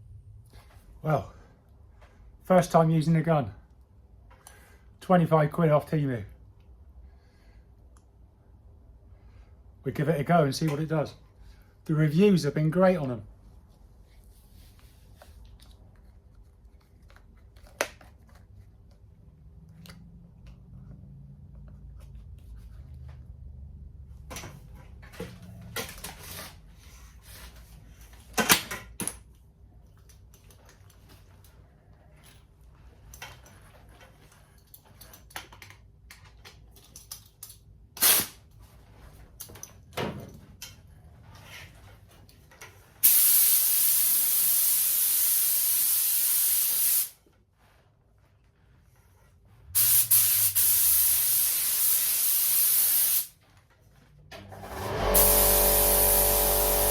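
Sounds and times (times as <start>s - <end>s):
spray gun hissing: 43.0s - 47.2s, 49.8s - 53.3s, 55.2s - 56.9s.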